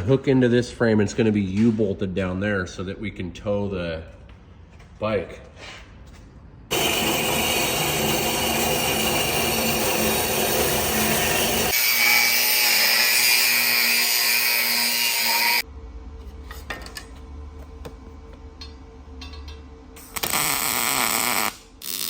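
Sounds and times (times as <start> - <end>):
power tool grinding metal: 6.7 - 15.6.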